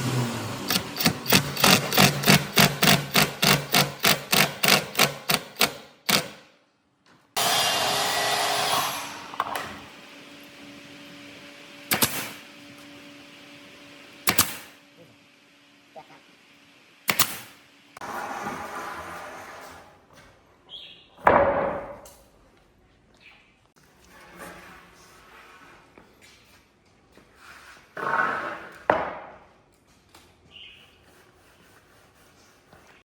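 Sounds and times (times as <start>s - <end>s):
rapid hammering: 0.7s - 6.4s.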